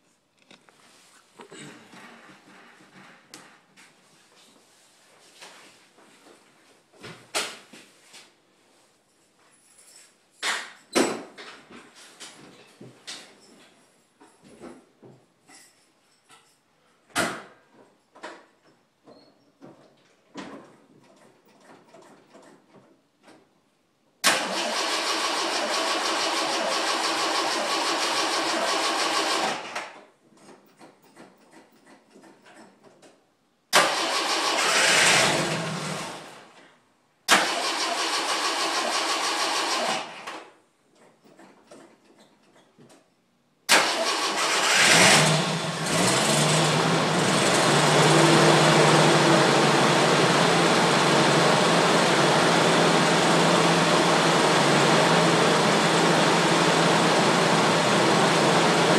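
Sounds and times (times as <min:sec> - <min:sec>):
starter motor cranking: 0:33.8 - 0:36.4, 0:43.7 - 0:48.0
engine revving and running: 0:34.2 - 0:36.4, 0:44.0 - 0:58.9.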